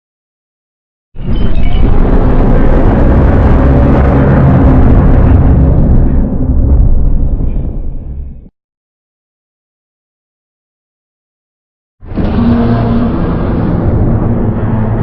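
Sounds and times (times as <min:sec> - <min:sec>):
deep monster rumbling: 0:01.2 - 0:08.5, 0:12.0 - 0:15.0.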